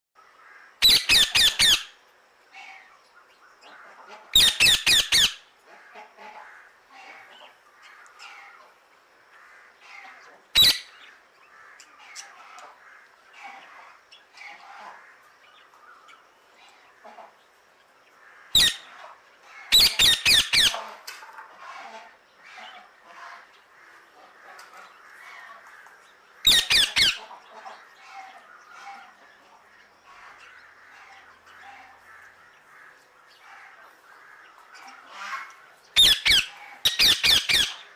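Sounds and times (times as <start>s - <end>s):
loud bird call: 0.7s - 2.0s, 26.4s - 27.3s, 35.1s - 37.9s
birds chirping: 9.4s - 19.0s, 22.3s - 37.9s.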